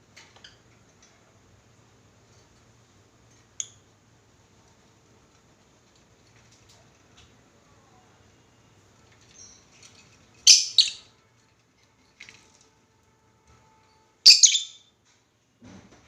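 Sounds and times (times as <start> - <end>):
lovebirds chirping: 10.4 - 11.1, 14.3 - 14.9
shrill bird calls: 10.5 - 11.1, 14.3 - 14.9.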